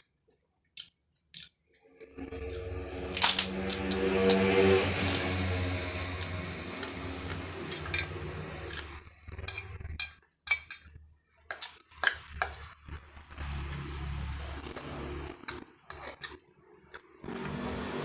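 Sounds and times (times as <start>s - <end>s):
low steady hum: 1.9s - 9.4s.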